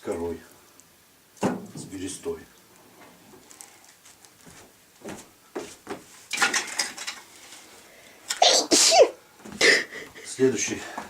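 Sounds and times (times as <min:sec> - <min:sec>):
person sneezing loudly: 0:08.3 - 0:09.9.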